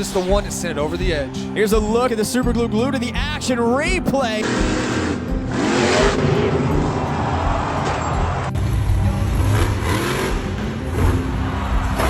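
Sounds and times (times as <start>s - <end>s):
truck engine running loudly: 4.4s - 12.0s.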